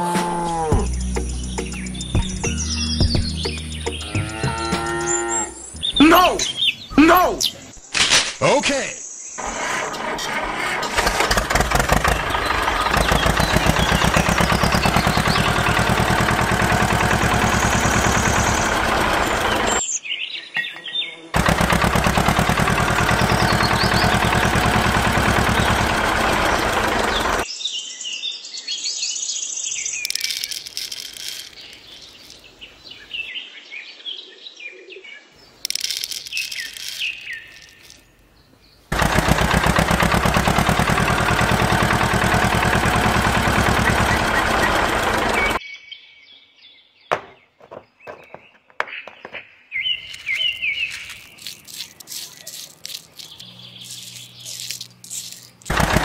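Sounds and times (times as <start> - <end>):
birds chirping: 0.0 - 9.5, 10.8 - 56.0
diesel tractor engine chugging: 9.4 - 19.8, 21.4 - 27.5, 38.9 - 45.6, 53.9 - 56.0.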